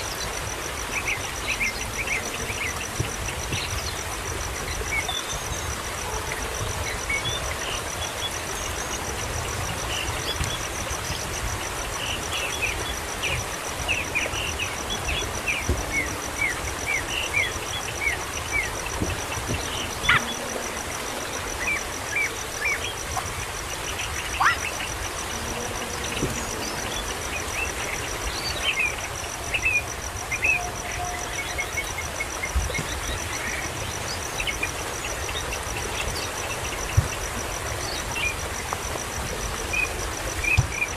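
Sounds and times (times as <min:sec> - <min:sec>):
insect trill: 0:00.0 - 0:40.9
birds chirping: 0:10.0 - 0:38.4.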